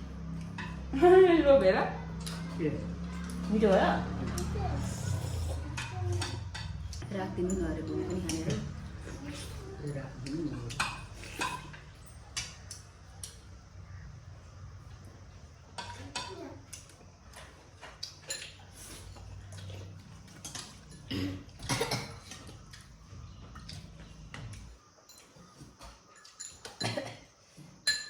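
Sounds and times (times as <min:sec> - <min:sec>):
spoons and dishes clinking: 0:26.1 - 0:27.1.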